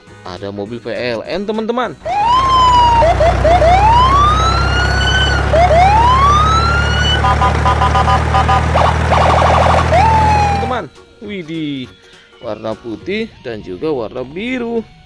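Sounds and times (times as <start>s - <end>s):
electronic siren wailing: 2.0s - 10.8s
two-tone beeping: 2.2s - 10.7s.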